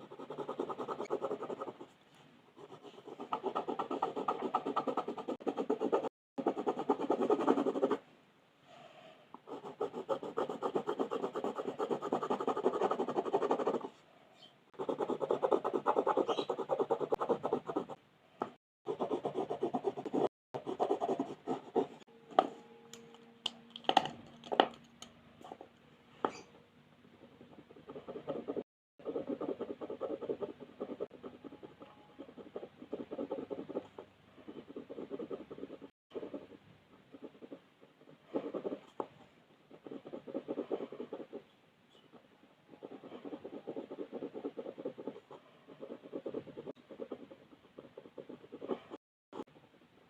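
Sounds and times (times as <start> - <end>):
coloring strokes scratching paper: 0.0 - 2.0, 9.5 - 14.0, 14.8 - 18.0, 18.9 - 22.1, 27.2 - 38.9, 39.7 - 41.4, 42.7 - 49.5.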